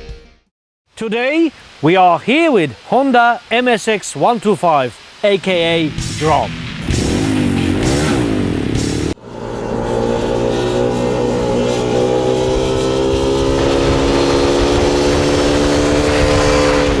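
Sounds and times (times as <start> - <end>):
motorcycle engine accelerating: 5.9 - 17.0.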